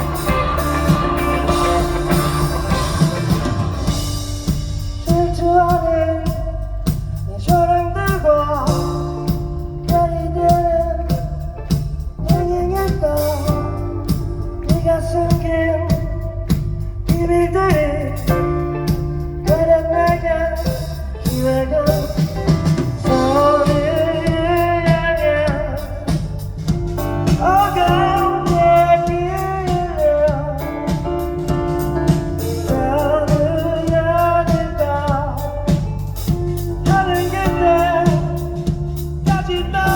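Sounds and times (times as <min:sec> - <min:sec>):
person singing: 0:00.0 - 0:06.6, 0:19.4 - 0:39.9
live band playing: 0:00.0 - 0:39.9.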